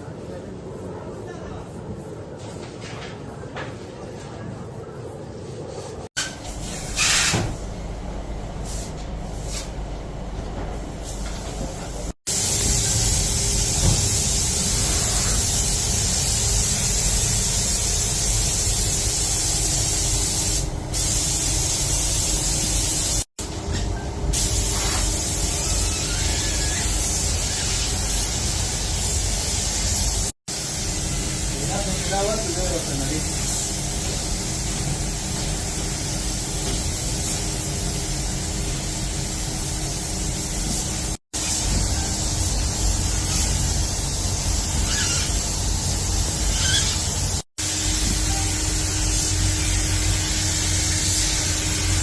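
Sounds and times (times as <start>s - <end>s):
pressurized air hissing spray: 6.9s - 7.6s, 12.3s - 23.3s, 24.3s - 52.0s.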